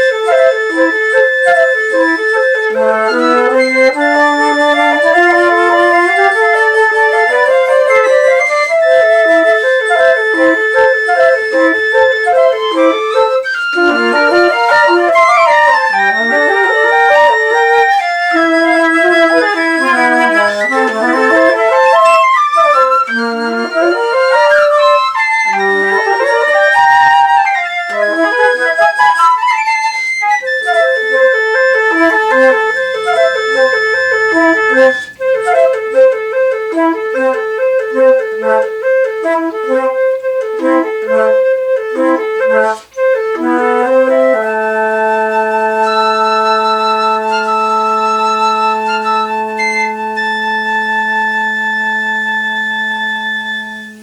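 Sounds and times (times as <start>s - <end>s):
flute ensemble playing: 0.0s - 54.0s.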